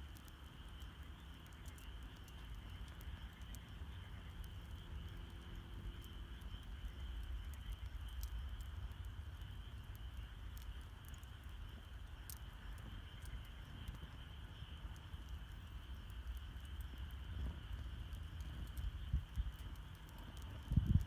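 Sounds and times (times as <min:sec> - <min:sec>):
campfire crackling and popping: 0:00.0 - 0:21.0
night insects trilling: 0:00.0 - 0:21.0.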